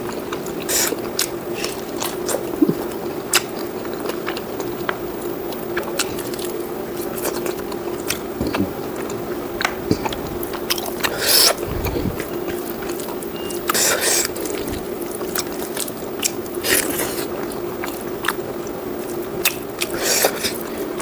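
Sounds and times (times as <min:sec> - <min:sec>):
close chewing mouth clicks: 0:00.0 - 0:21.0
low hum: 0:11.5 - 0:12.6.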